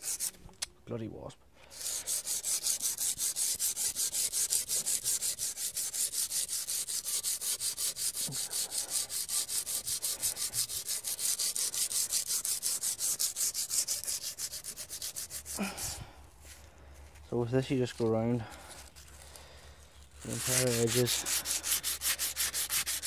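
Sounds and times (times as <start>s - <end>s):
sandpaper scrubbing metal rim: 0.0s - 0.4s, 1.7s - 16.0s, 20.2s - 23.0s.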